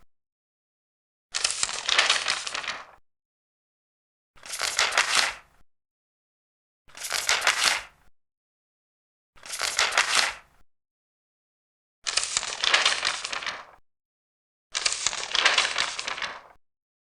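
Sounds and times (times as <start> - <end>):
paper pages turning: 1.4 - 3.0, 4.4 - 5.4, 6.9 - 7.9, 9.4 - 10.4, 12.1 - 13.8, 14.8 - 16.6.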